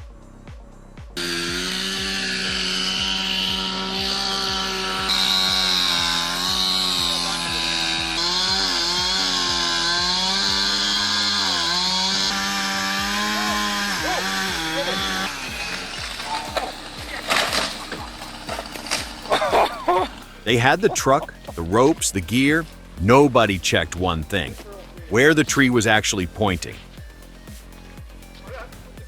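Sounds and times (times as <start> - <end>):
chainsaw cutting wood: 1.2 - 29.0.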